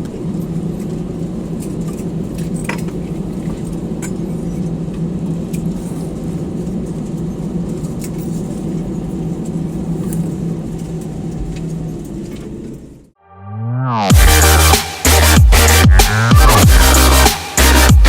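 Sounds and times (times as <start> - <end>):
airplane cabin hum: 0.0 - 13.2.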